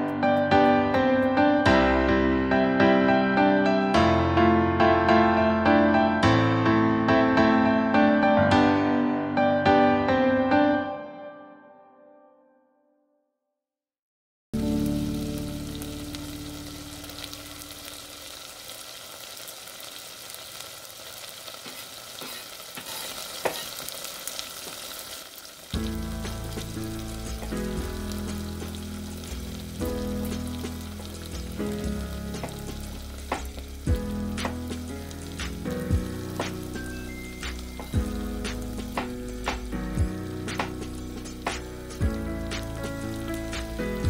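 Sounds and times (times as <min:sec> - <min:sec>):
meat sizzling in a pot: 0:14.6 - 0:44.0
light background music: 0:25.8 - 0:44.0.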